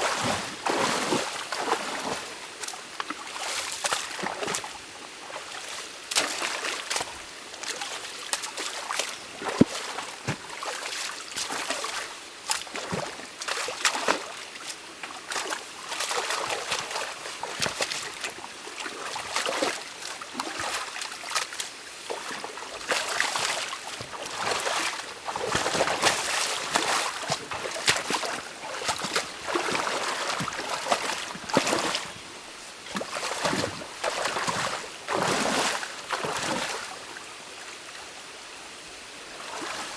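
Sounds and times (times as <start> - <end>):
stream water trickling: 0.0 - 39.9
sharp splashes and knocks: 6.1 - 14.3, 15.3 - 18.4, 19.1 - 36.8.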